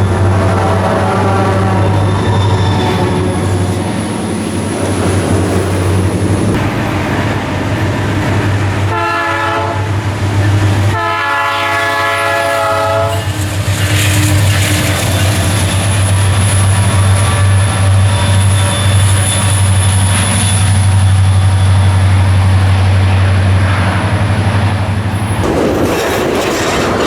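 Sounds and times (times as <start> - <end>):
moving train rumbling: 0.0 - 27.0
locomotive horn blasts: 8.9 - 10.0, 10.9 - 13.3, 16.2 - 19.4.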